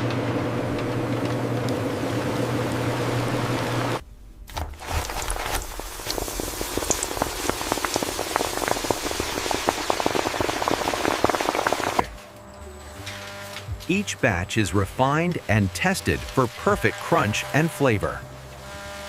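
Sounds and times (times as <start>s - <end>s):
industrial machine hum: 0.0s - 4.5s, 7.5s - 19.0s
potato slices frying in oil: 4.8s - 12.0s.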